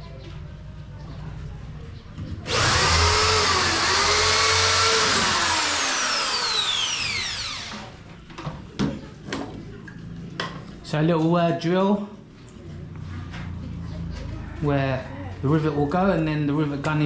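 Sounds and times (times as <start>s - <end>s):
electric drill drilling: 2.5s - 8.0s.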